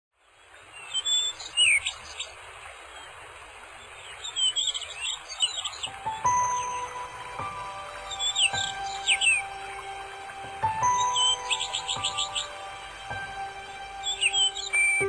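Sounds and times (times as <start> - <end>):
birds chirping: 0.2 - 15.0
whistled calls sliding down: 0.8 - 2.4, 3.0 - 15.0
music with held tones: 5.8 - 15.0.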